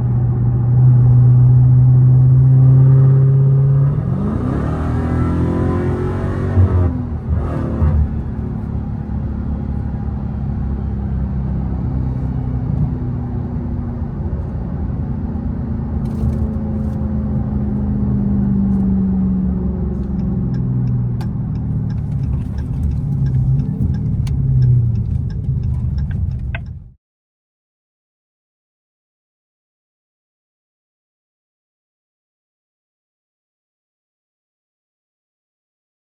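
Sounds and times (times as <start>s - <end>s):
car engine deep rumble: 0.0s - 27.0s.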